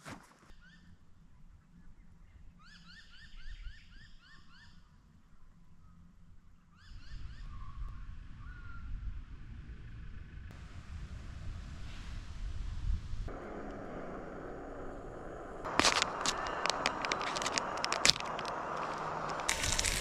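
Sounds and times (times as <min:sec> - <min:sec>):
wind rumble on microphone: 0:06.9 - 0:20.0.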